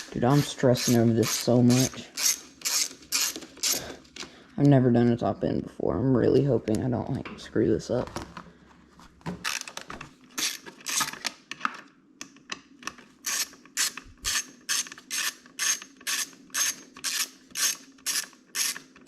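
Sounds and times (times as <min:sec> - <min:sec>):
socket ratchet clicking: 0:02.2 - 0:03.8.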